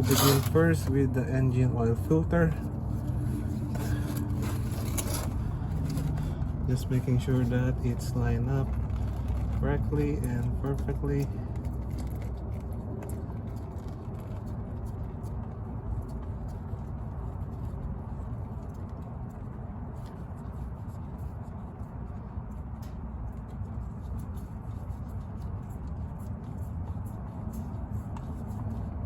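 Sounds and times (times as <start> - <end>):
tools clicking and scraping: 0.0 - 1.0, 2.6 - 14.0
low background rumble: 0.0 - 29.0.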